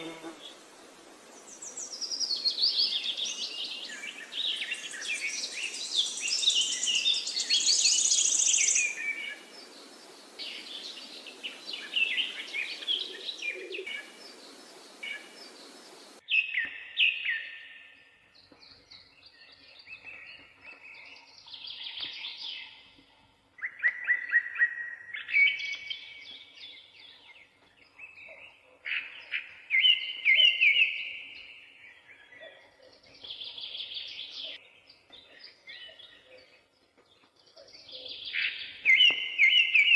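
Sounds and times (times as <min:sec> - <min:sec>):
background noise: 0:00.0 - 0:39.9.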